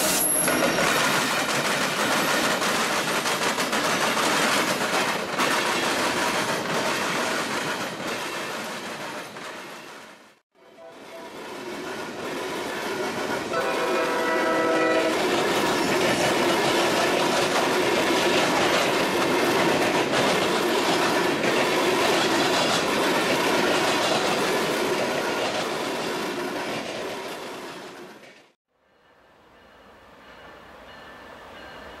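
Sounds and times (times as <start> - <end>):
wheels clattering on rails: 0.2 - 10.2, 11.3 - 28.6
train horn blast: 10.6 - 11.4, 13.5 - 15.2.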